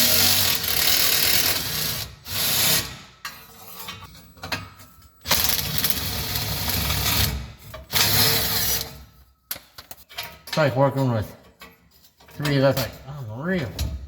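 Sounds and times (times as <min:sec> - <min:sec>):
small metal clicks and clanks: 0:03.2 - 0:06.0, 0:07.6 - 0:14.0.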